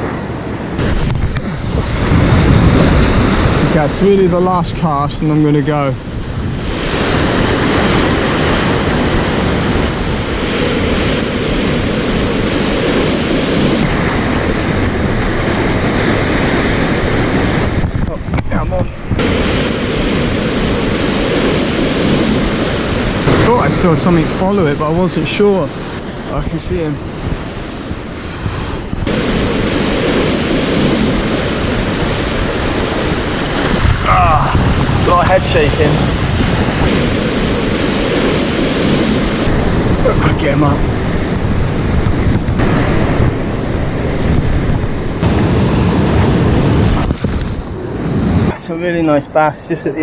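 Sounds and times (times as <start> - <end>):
surf rushing against rocks: 0.0 - 50.0
wind buffeting microphone: 0.0 - 50.0.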